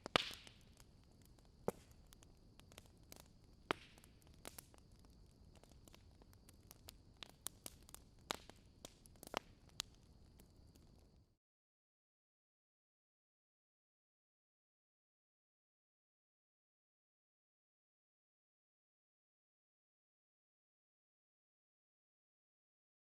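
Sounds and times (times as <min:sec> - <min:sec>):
fire crackling: 0:00.0 - 0:11.3.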